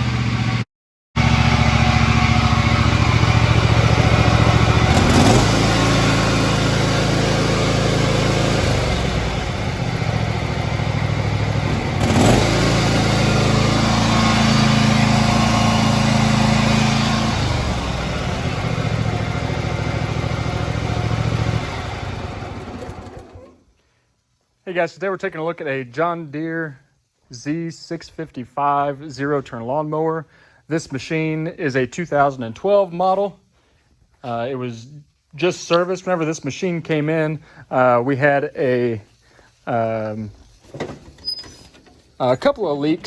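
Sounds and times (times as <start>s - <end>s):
mower engine running: 0.0s - 0.6s, 1.2s - 23.6s.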